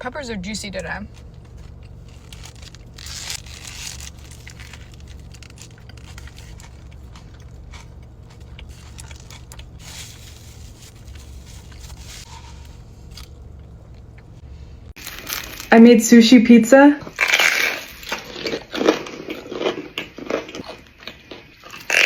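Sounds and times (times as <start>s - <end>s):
low hum: 0.0s - 16.2s
eating crunches and rustles: 1.1s - 14.3s, 15.0s - 15.7s, 17.0s - 22.0s.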